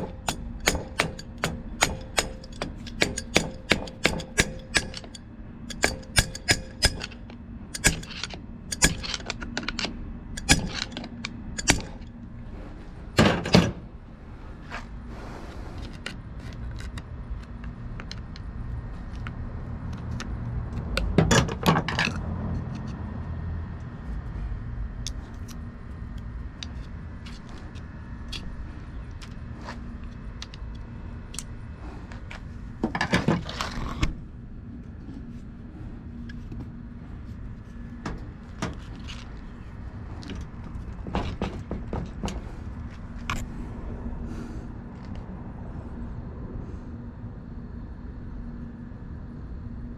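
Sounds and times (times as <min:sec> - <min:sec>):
metal tools clinking and knocking: 0:00.0 - 0:12.1
steady low hum: 0:00.0 - 0:49.9.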